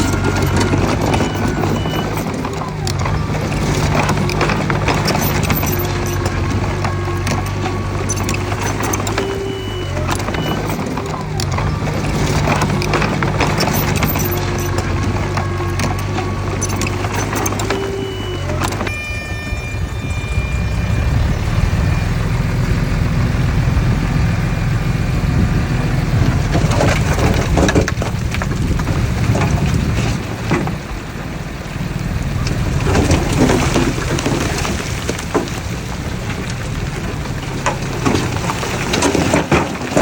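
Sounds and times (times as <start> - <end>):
metallic clanks and rattles: 0.0 - 18.9
diesel engine running under load: 0.0 - 40.0.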